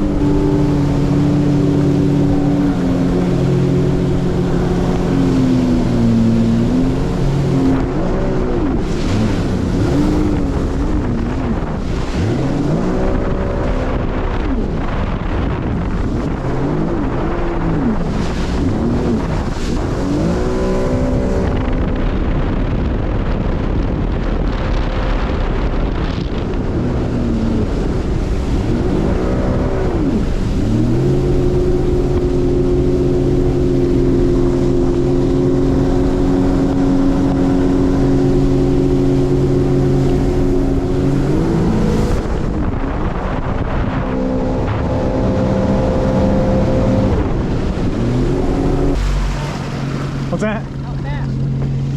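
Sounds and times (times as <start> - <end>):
motorboat engine revving: 0.0 - 51.9
wind on microphone: 0.0 - 51.9.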